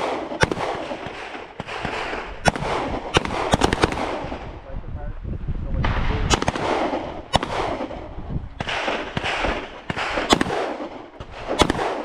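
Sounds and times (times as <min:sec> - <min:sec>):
handgun shots echoing: 0:00.0 - 0:04.4, 0:06.2 - 0:08.0, 0:08.6 - 0:12.0.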